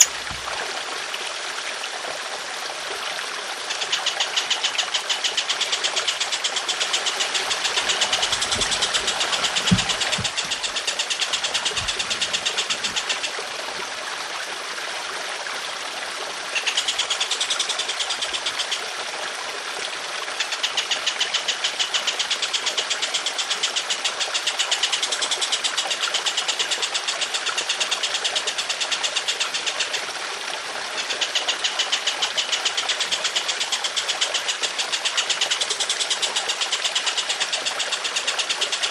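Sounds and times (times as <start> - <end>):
bird rattling trill: 0.0 - 0.5, 3.7 - 13.4, 16.5 - 18.8, 31.0 - 38.9
water trickling: 0.0 - 38.9
low thumps: 8.2 - 10.8.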